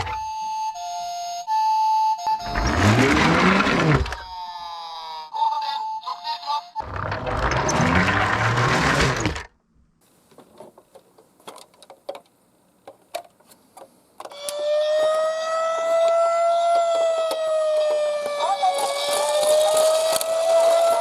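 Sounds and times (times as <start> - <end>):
siren wail: 2.3 - 4.7, 14.4 - 21.0
toy cars rolling and rattling: 2.4 - 4.3, 6.8 - 9.5, 18.2 - 21.0.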